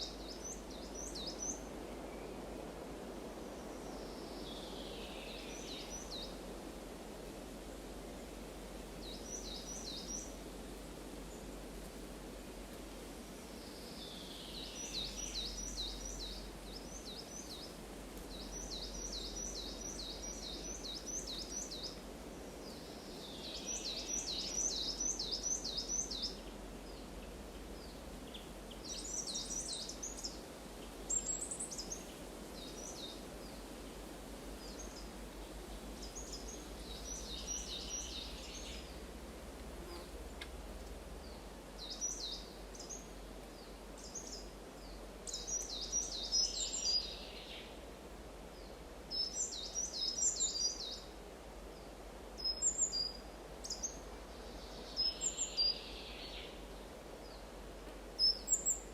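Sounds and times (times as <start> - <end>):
songbird singing: 0.0 - 6.5, 7.7 - 11.7, 13.5 - 39.2, 39.8 - 58.9
low background noise: 0.0 - 58.9.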